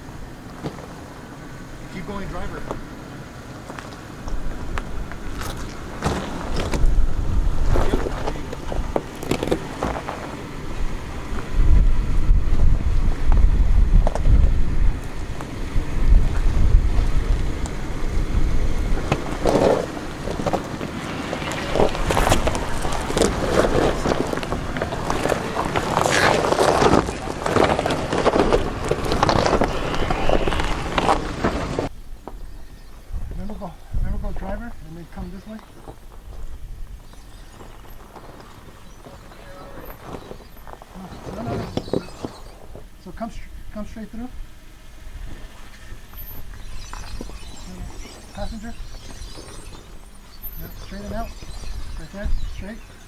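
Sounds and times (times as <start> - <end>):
vehicle engine low rumble: 0.0 - 53.0
rock and gravel crunching under tyres: 0.2 - 53.0
wind on microphone: 4.4 - 9.1, 10.7 - 20.5, 21.4 - 35.4, 36.0 - 37.9, 44.4 - 53.0.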